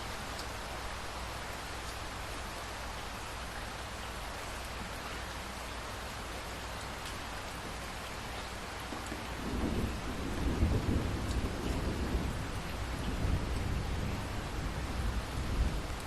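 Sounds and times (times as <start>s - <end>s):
rain falling: 0.0s - 16.0s
thunder rumbling: 9.3s - 16.0s.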